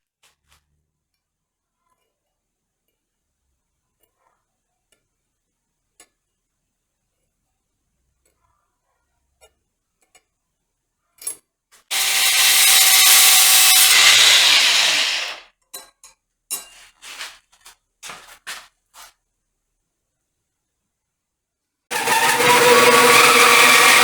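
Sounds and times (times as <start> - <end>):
power tool spinning down: 11.9 - 15.4, 21.9 - 24.0
short scraping rubs: 11.9 - 15.4.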